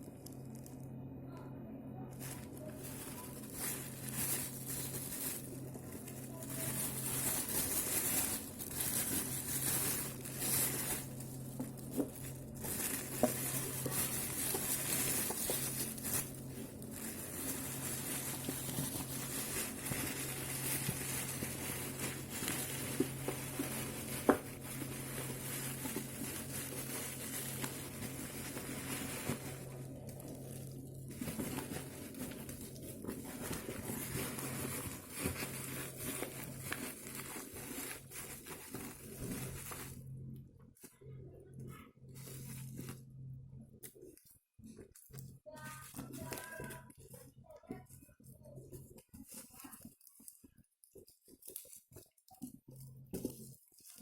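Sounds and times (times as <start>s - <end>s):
rustling and crinkling: 0.0s - 1.0s, 2.1s - 54.0s
steady low hum: 0.0s - 47.6s.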